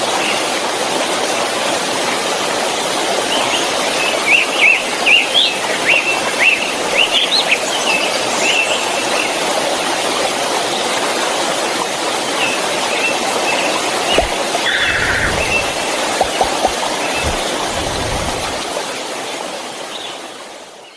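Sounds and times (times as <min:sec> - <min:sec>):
birds chirping: 0:14.0 - 0:18.6
waterfall rushing: 0:14.0 - 0:19.6.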